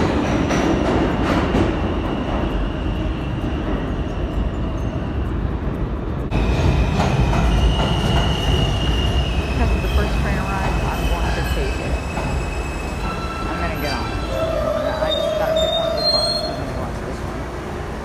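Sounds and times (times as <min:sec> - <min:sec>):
subway train rumbling: 0:00.0 - 0:18.0
faint high wheel squeal: 0:06.4 - 0:17.5.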